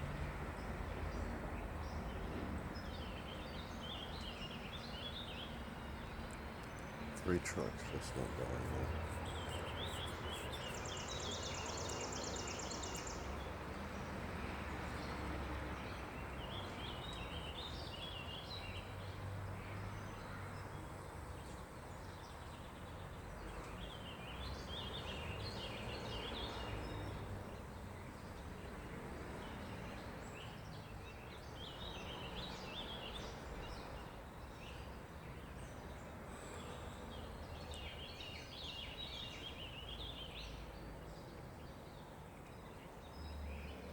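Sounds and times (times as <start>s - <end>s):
birds chirping: 1.9s - 13.5s
distant heavy trucks rumbling: 7.2s - 11.6s.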